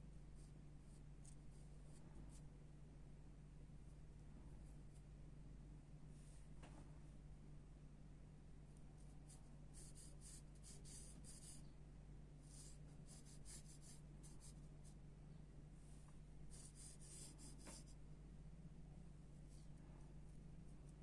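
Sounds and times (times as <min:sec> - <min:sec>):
faint steady hum: 0:00.0 - 0:21.0
pencil scratching on paper: 0:09.3 - 0:11.7, 0:12.5 - 0:15.0, 0:16.5 - 0:17.9.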